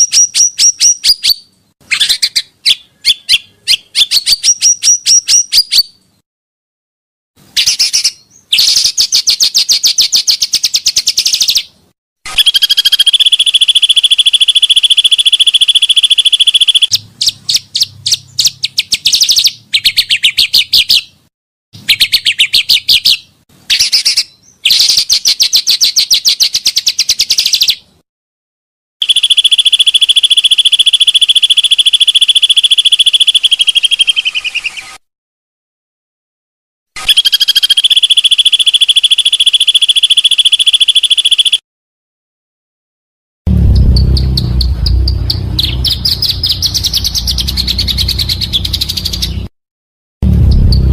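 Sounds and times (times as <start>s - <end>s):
buzzy high bird trilling: 12.3s - 21.1s, 29.0s - 35.0s, 37.0s - 41.6s, 43.8s - 49.5s.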